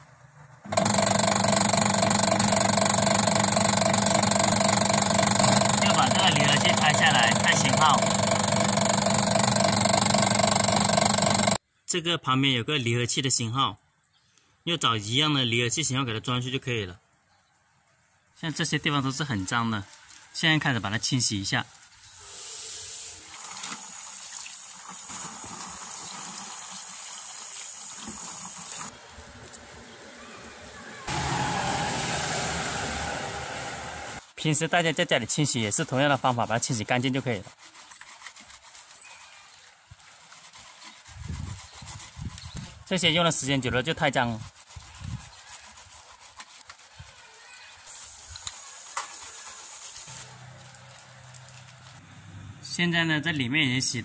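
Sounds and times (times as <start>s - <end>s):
scrubbing rubbing noise: 5.2s - 11.6s, 34.2s - 52.0s
water spraying and splashing: 21.8s - 34.3s, 44.5s - 52.0s
hiss: 22.2s - 23.3s, 31.1s - 34.2s, 47.9s - 50.2s.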